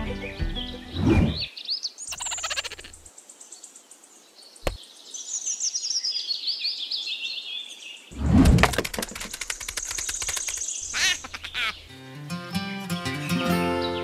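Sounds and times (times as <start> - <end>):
birds chirping and trilling: 0.0 - 12.2
sharp click: 8.6 - 10.7.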